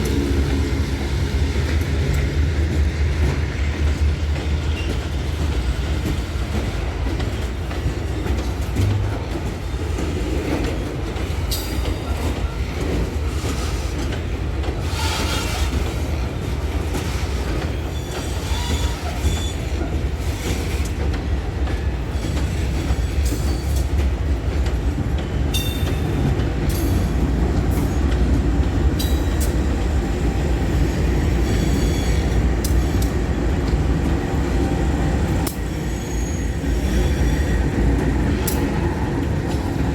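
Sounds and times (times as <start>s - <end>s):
freight train wheels rumbling: 0.0s - 39.9s
high-pitched wheel squeals: 31.4s - 32.9s.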